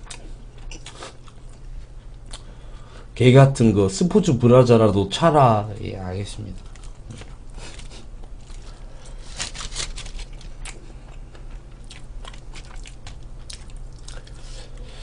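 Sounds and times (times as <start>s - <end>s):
person chewing food: 0.0s - 2.5s, 6.6s - 14.9s.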